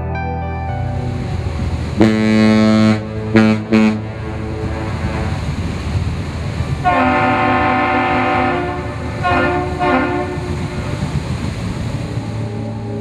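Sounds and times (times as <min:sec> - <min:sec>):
steady low rumble: 0:00.0 - 0:13.0
multi-tone air horn blasts: 0:02.0 - 0:05.6, 0:06.8 - 0:10.8.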